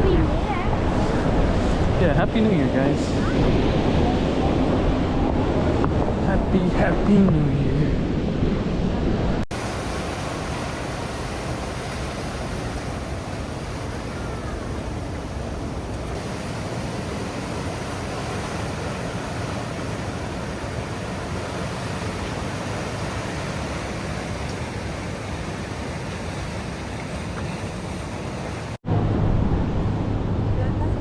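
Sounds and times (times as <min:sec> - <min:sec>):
wind on microphone: 0:00.0 - 0:31.0
ocean surf on rocky shore: 0:09.5 - 0:28.8.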